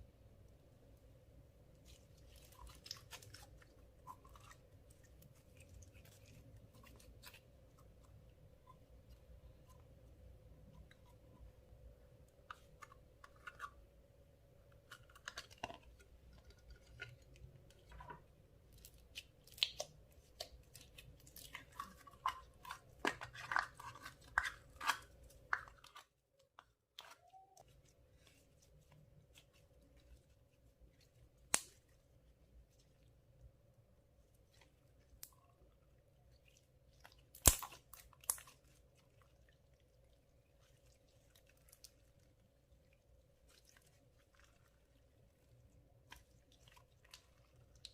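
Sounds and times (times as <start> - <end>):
slime clicking and crackling: 18.8 - 26.0, 37.0 - 39.2.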